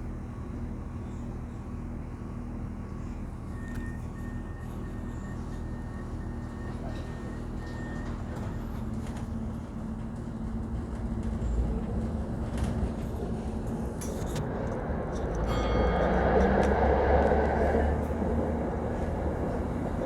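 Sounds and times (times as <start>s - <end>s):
low vehicle rumble: 10.1s - 20.0s.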